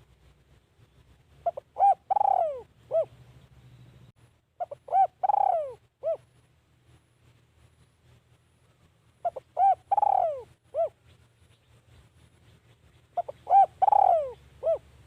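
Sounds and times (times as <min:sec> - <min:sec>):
dove cooing: 0:01.4 - 0:03.2, 0:04.6 - 0:06.4, 0:09.2 - 0:11.1, 0:13.1 - 0:15.0.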